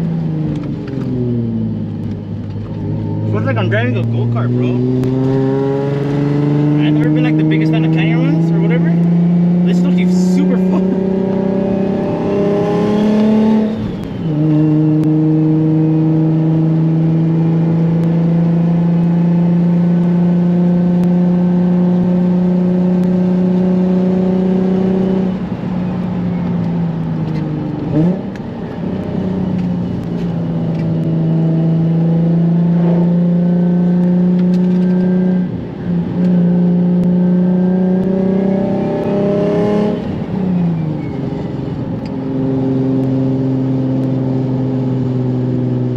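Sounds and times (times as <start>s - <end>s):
car engine from inside cabin: 0.0s - 45.9s.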